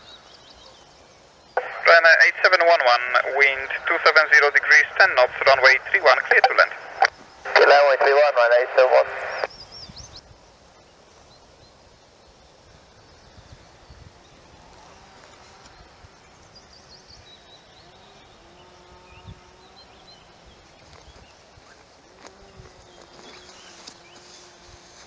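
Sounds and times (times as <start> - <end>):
birds chirping and warbling: 0.0 - 2.6, 9.1 - 25.0
faint background hiss: 0.0 - 25.0.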